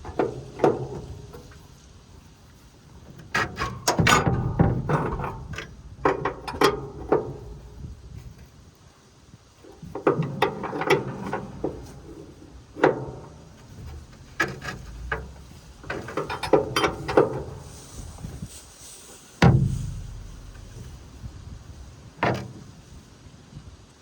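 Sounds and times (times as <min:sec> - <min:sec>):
wrench knocking and clanking: 0:03.1 - 0:07.9, 0:09.8 - 0:17.7.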